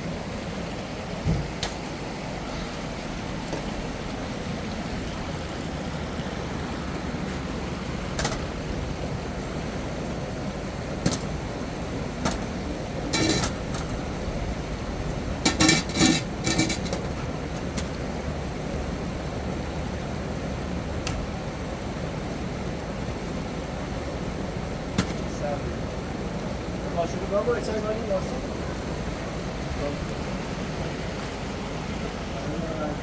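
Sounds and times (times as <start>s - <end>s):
steady rushing noise: 0.0s - 33.0s
clinks and knocks: 12.2s - 14.1s, 15.1s - 18.0s.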